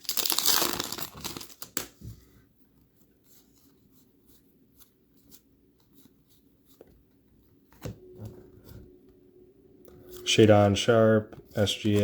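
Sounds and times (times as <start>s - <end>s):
trading cards rustling: 0.0s - 2.0s, 11.5s - 12.0s.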